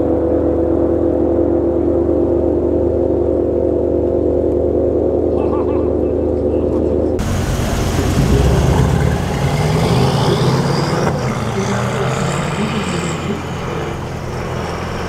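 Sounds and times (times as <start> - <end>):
car engine idling: 4.2 - 15.0.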